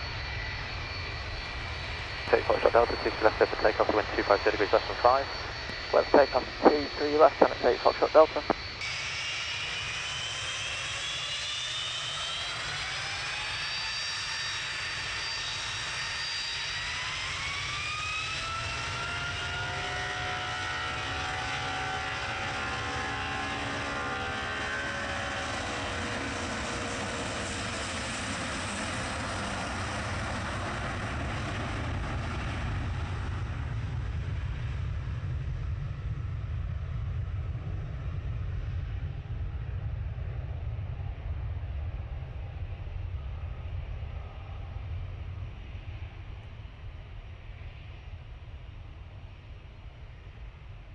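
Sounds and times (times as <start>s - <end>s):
deep airplane rumble: 0.0s - 8.8s, 28.8s - 48.1s
jet engines whining: 0.0s - 33.4s.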